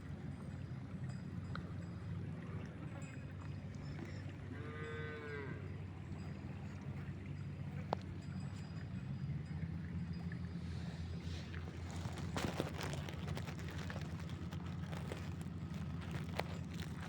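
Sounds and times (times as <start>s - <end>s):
cow mooing: 4.5s - 5.7s.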